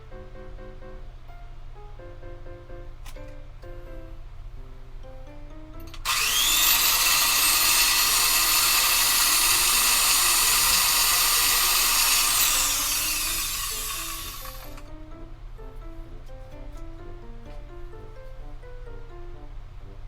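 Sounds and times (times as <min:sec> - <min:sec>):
handheld power tool motor whine: 0:05.9 - 0:14.9.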